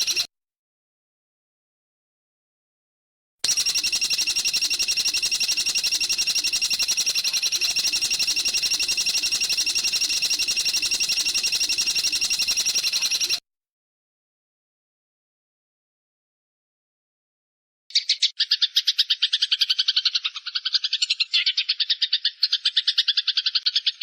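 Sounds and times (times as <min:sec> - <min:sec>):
songbird trilling: 0:17.9 - 0:24.0.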